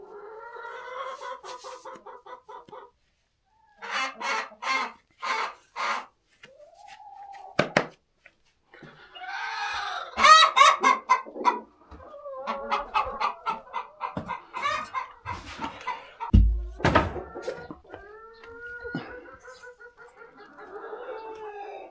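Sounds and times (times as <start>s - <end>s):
chickens clucking and cackling: 0.0s - 7.6s, 8.7s - 21.9s.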